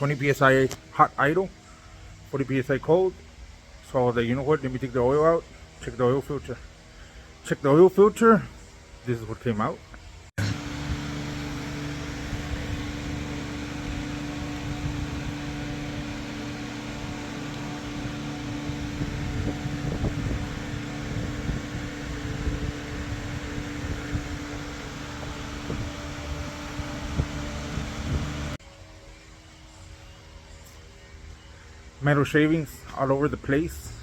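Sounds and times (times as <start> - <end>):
steady machine hum: 10.4 - 28.6.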